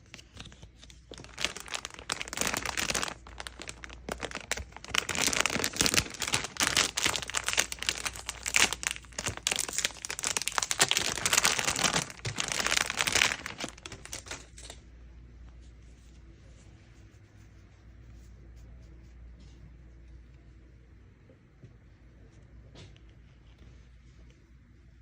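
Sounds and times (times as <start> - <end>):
packaging crinkling and rustling: 0.0 - 14.8.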